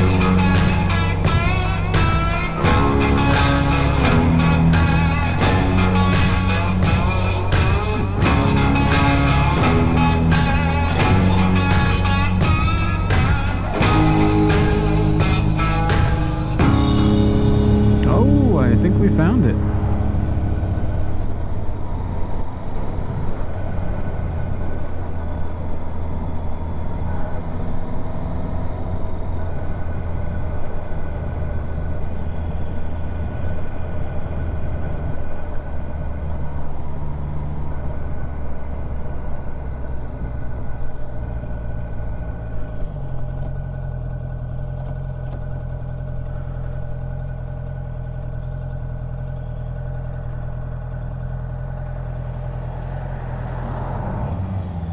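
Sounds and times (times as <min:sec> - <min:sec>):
motorcycle engine running: 0:00.0 - 0:18.3, 0:39.6 - 0:53.1.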